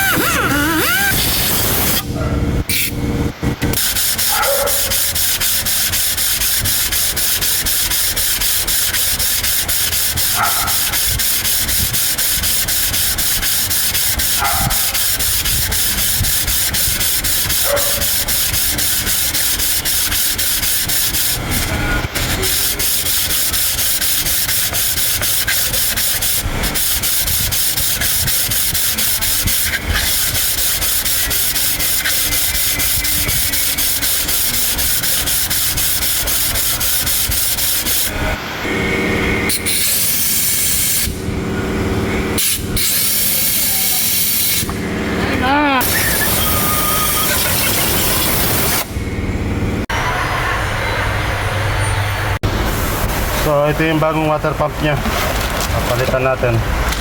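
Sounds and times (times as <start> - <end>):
abrasive rubbing: 0.0 - 2.0.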